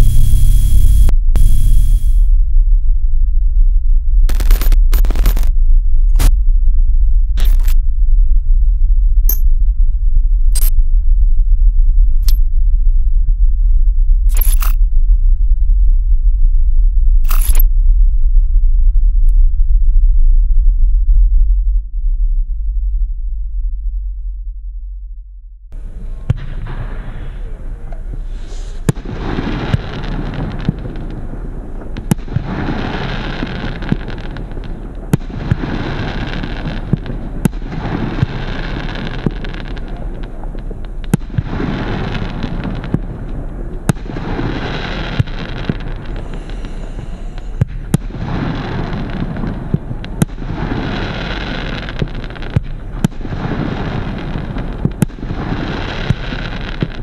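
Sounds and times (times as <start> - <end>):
firework bangs: 0.0 - 2.3, 25.8 - 57.0
firework crackle and hiss: 0.0 - 2.3, 4.3 - 5.5, 25.8 - 57.0.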